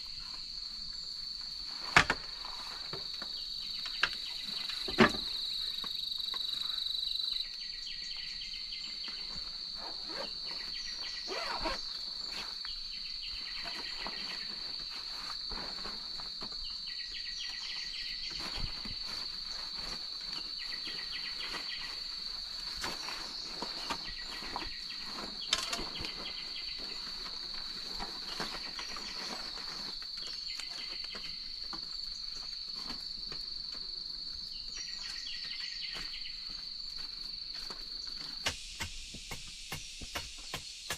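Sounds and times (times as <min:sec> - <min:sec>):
rapid pulsed insect chirp: 0:00.0 - 0:40.9
high-pitched insect drone: 0:38.4 - 0:40.9.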